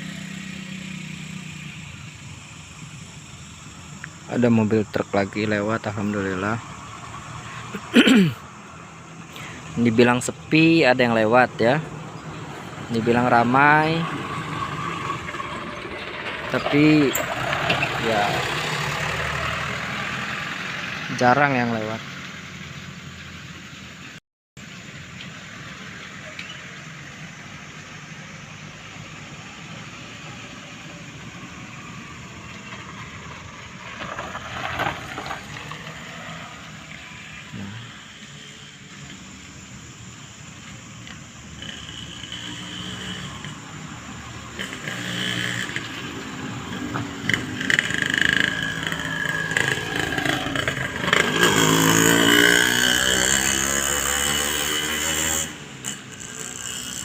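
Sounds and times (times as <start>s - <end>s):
motor vehicle and road noise: 0.0s - 57.0s
vehicle approaching: 0.0s - 57.0s.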